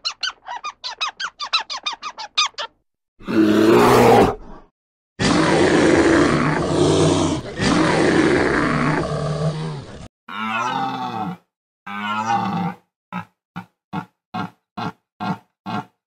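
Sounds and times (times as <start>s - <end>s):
bear growling: 5.2s - 13.3s.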